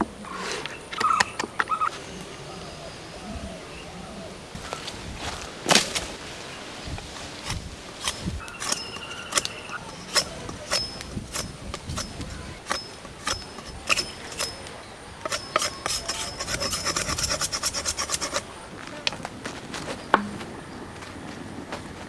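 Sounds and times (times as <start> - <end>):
knife chopping on wood: 7.2 - 14.6.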